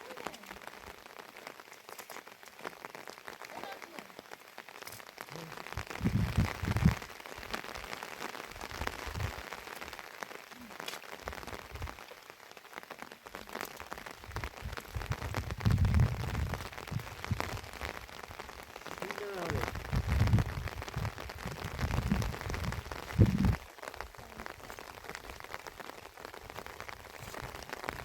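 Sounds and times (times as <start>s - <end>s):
heavy rain pattering: 0.0s - 28.0s
low rumbling gusts: 5.6s - 7.5s, 14.2s - 18.4s, 19.0s - 23.6s.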